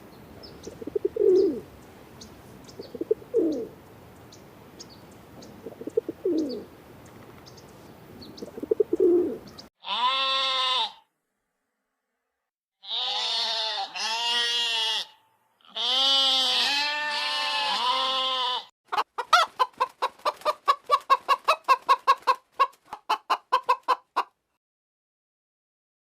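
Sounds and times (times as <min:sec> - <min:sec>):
goat bleating: 0:09.8 - 0:11.0, 0:12.8 - 0:18.7
chicken clucking: 0:18.9 - 0:24.4.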